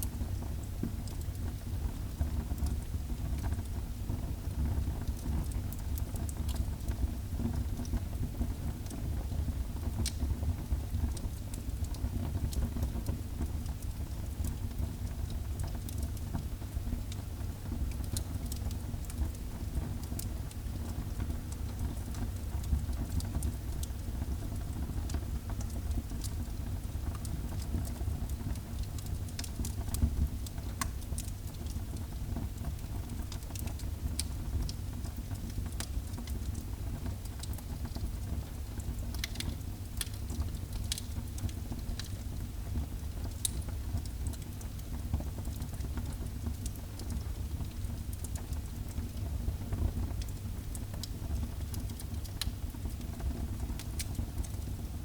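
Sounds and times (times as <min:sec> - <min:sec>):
fire crackling and popping: 0:10.0 - 0:10.3, 0:11.1 - 0:54.7.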